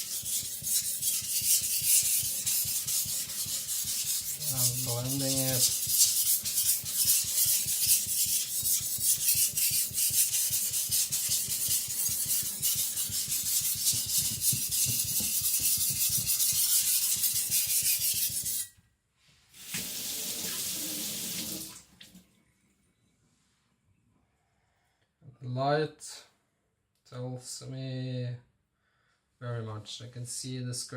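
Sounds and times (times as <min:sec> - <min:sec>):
blade rubbed on whetstone: 0:00.0 - 0:18.7.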